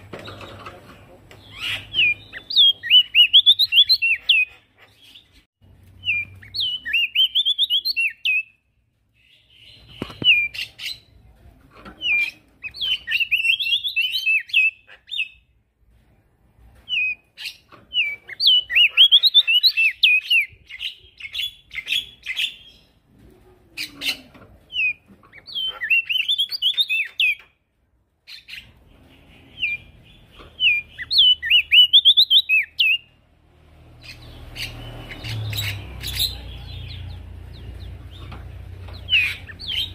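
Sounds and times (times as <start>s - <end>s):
songbird singing high chirps: 1.4s - 4.5s, 6.0s - 8.6s, 24.7s - 27.5s, 28.3s - 33.1s.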